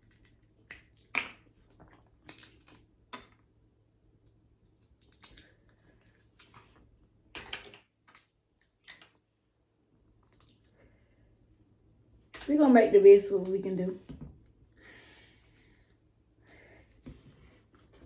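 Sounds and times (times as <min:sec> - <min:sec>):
seafood shells cracking: 0:02.2 - 0:02.9.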